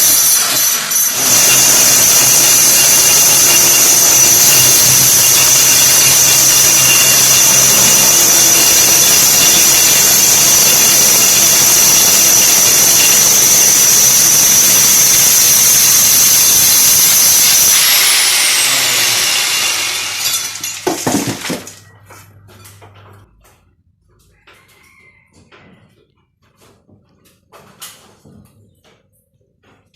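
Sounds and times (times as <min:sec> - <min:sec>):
electric drill boring: 0:00.0 - 0:21.8.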